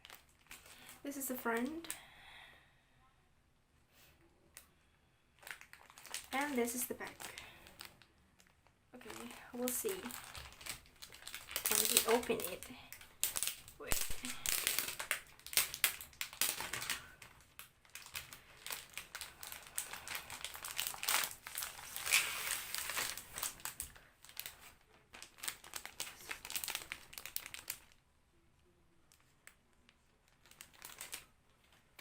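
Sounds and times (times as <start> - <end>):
plastic wrapping crinkling: 0.0 - 2.0, 5.4 - 28.0, 29.0 - 32.0.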